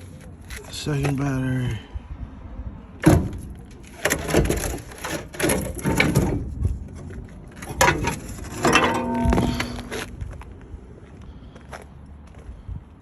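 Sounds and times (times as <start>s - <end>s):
hand tools clanking on metal: 7.6s - 10.2s
short metallic ring: 8.6s - 10.2s.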